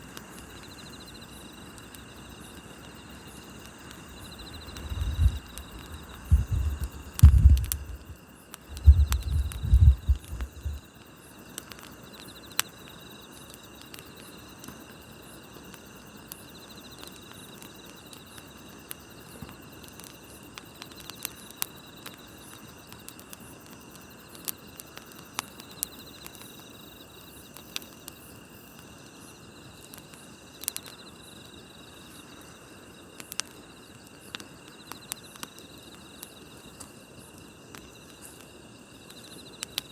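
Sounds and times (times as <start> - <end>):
campfire crackling and popping: 0.0 - 39.9
crickets chirping: 0.0 - 39.9
loud low rumbling bumps: 6.2 - 8.1, 8.8 - 10.8.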